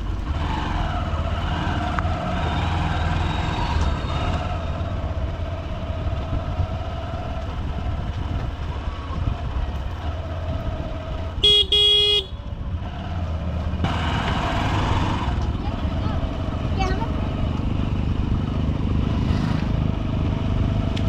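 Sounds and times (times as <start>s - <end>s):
motorcycle engine running: 0.0s - 21.0s
vehicle horn toots: 11.4s - 12.5s.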